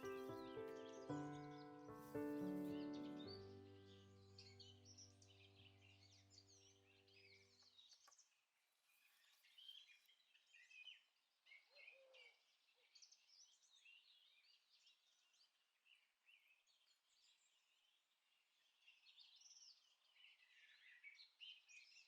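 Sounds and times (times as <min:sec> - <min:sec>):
soft background music: 0:00.0 - 0:07.5
small birds chirping and whistling: 0:00.0 - 0:08.2.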